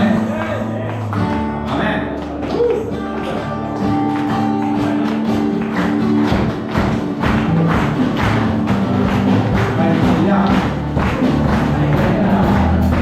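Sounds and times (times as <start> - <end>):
percussion beat: 0.0 - 13.0
worship band playing: 0.0 - 13.0
person singing: 9.7 - 13.0.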